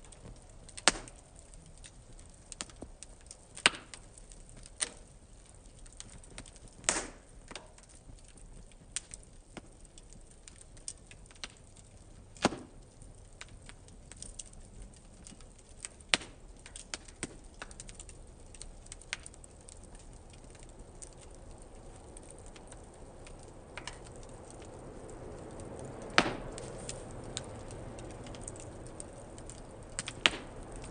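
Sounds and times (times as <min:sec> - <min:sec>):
wood fire crackling and popping: 0:00.0 - 0:30.9
hiss of flames: 0:20.0 - 0:30.9.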